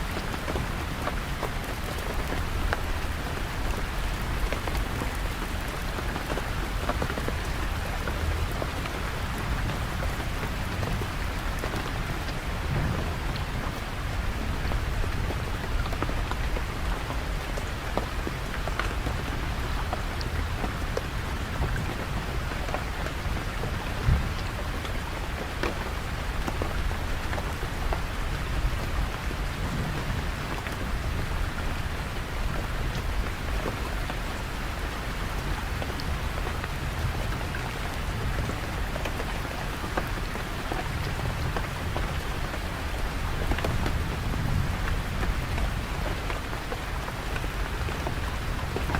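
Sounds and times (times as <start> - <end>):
raindrops ticking on surfaces: 0.0 - 48.9
steady rain falling: 0.0 - 48.9.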